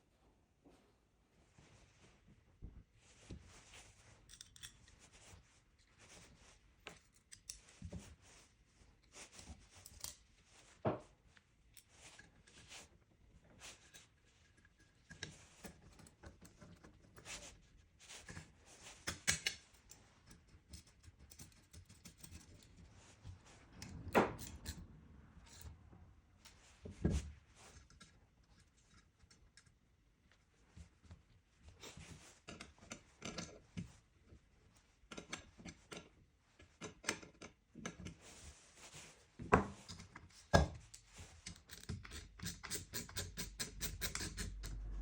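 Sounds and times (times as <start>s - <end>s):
metal parts clicking and scraping: 4.3s - 5.0s.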